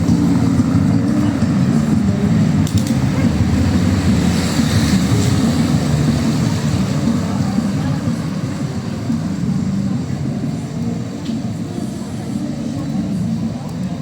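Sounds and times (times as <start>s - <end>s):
city street traffic rumble: 0.0s - 14.0s
vehicle engine running nearby: 0.0s - 14.0s.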